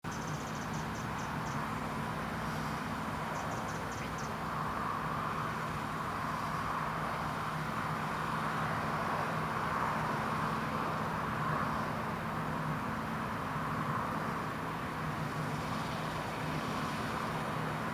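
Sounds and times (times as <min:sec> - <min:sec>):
combine harvester engine hum: 0:00.0 - 0:17.9.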